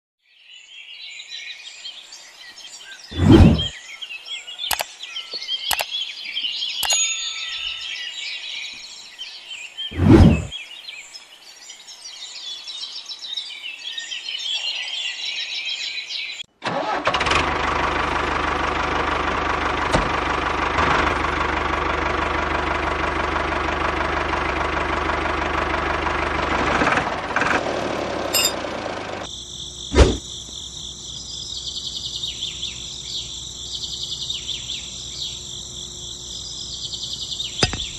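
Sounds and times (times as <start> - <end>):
birds chirping: 0.4 - 16.5, 29.9 - 37.9
small engine droning: 16.7 - 29.3
insects chirring: 29.2 - 37.9
thumps: 37.6 - 37.9.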